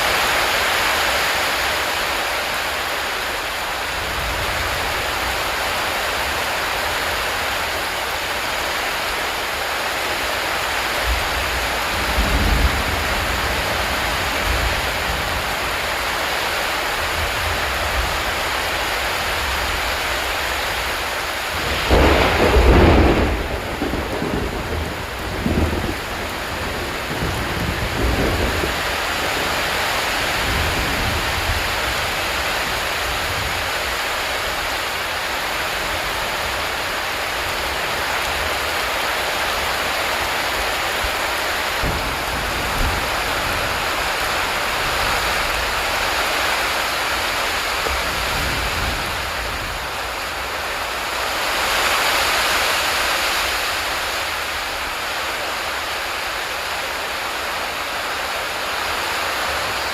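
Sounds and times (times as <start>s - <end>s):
heavy rushing water hiss: 0.0s - 59.9s.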